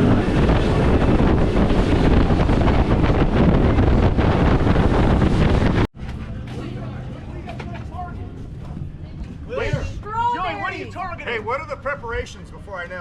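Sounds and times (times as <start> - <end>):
wind buffeting the microphone: 0.0 - 6.4, 7.9 - 10.7
boat engine rushing: 0.0 - 13.0.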